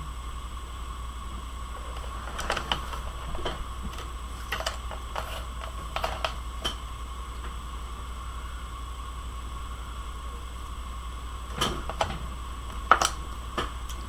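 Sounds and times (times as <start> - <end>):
steady low hum: 0.0 - 14.0
craft tools clicking on desk: 3.9 - 6.8.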